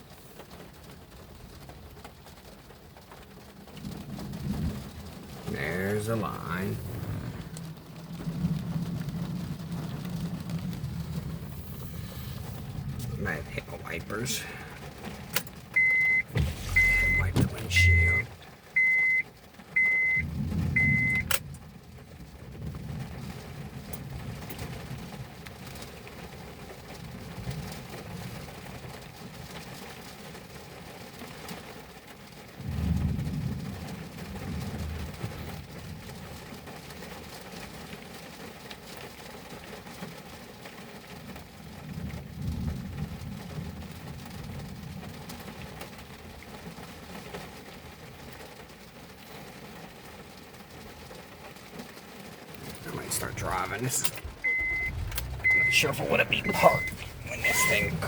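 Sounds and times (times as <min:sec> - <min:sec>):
rain hissing: 0:00.0 - 0:28.6, 0:48.4 - 0:58.0
deep thunder rumbles: 0:03.7 - 0:05.6, 0:06.2 - 0:13.7, 0:20.2 - 0:25.1, 0:52.6 - 0:58.0
car electronic chime beeps: 0:15.8 - 0:19.2, 0:19.8 - 0:21.4, 0:53.2 - 0:58.0.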